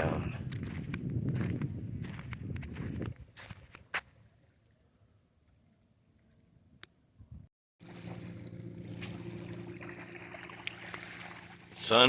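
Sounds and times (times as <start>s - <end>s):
insects chirping: 0.0s - 7.5s.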